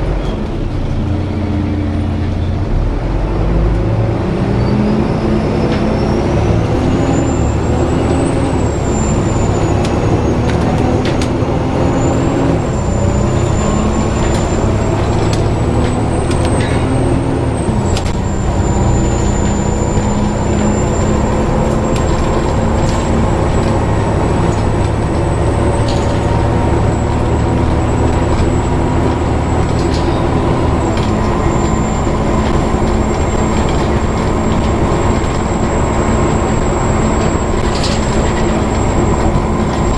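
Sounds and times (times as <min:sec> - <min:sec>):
diesel engine hum: 0:00.0 - 0:39.9
road noise: 0:00.0 - 0:39.9
high-pitched fan squeal: 0:11.7 - 0:24.2.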